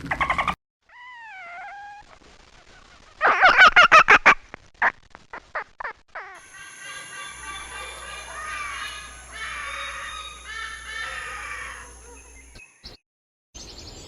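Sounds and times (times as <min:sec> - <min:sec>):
animal calling: 0:05.8 - 0:12.6.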